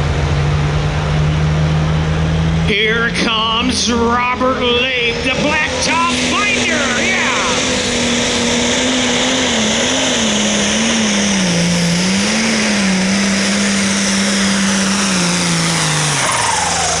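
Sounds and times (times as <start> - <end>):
diesel tractor engine under load: 0.0 - 17.0.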